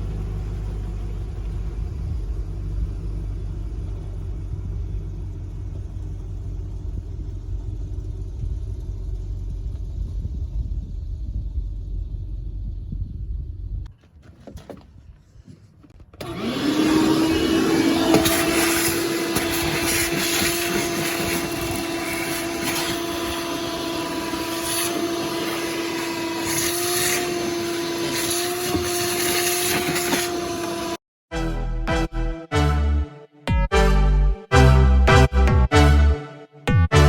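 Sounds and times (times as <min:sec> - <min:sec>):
vacuum cleaner motor whining: 0:16.2 - 0:31.0.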